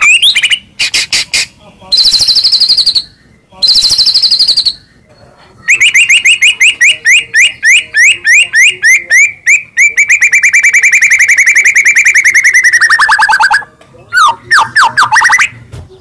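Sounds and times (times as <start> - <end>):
bird singing whistled trill: 2.0 - 4.9, 5.7 - 15.5.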